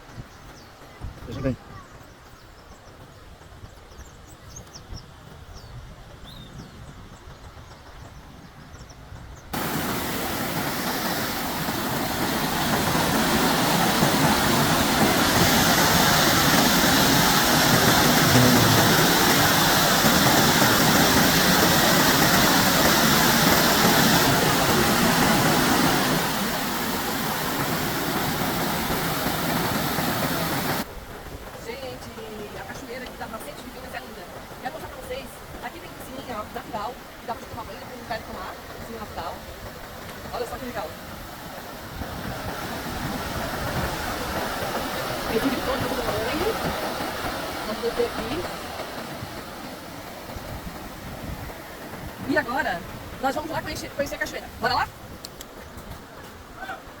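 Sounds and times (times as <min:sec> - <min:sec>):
waterfall rushing: 0:09.6 - 0:30.9, 0:32.4 - 0:55.4.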